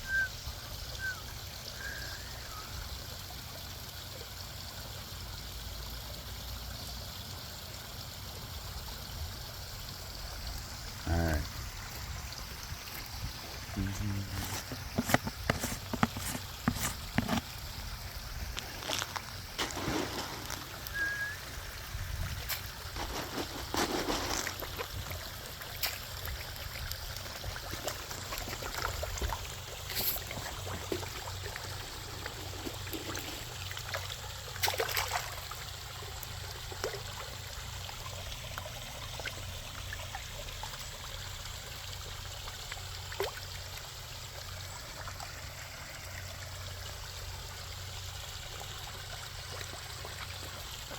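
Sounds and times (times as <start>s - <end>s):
pond waterfall trickling: 0.0s - 50.9s
sharp splash or click: 34.6s - 35.4s.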